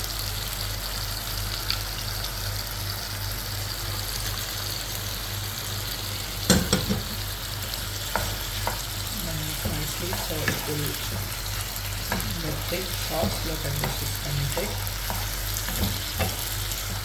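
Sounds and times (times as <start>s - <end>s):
low electrical hum: 0.0s - 17.0s
stir-fry sizzling in a pan: 0.0s - 17.0s.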